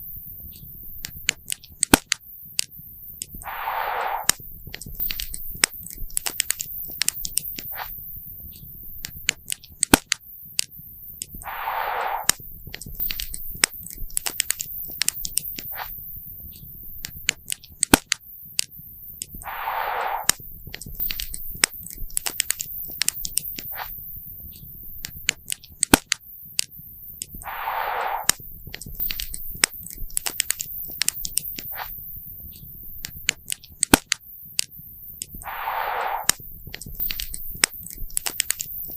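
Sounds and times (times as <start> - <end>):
short hiss: 3.4 - 4.4, 11.4 - 12.4, 19.4 - 20.4, 27.4 - 28.4, 35.4 - 38.0.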